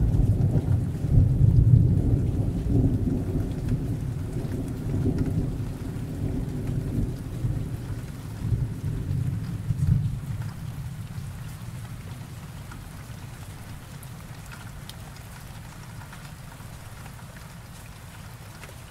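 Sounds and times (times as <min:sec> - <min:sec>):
low thunder rumbling: 0:00.0 - 0:12.2
steady rain: 0:00.0 - 0:18.9.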